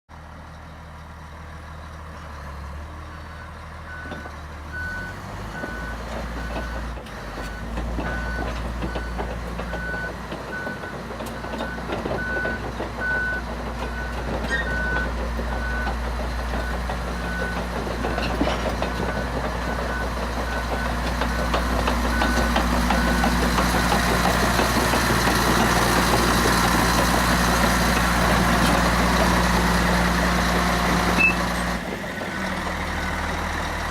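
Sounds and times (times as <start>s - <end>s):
bulldozer diesel engine running: 0.1s - 33.9s.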